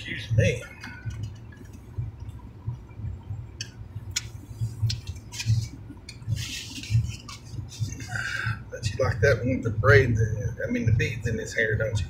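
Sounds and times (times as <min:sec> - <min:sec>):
low car cabin hum: 0:00.0 - 0:12.0
smacking hiss: 0:03.6 - 0:08.3.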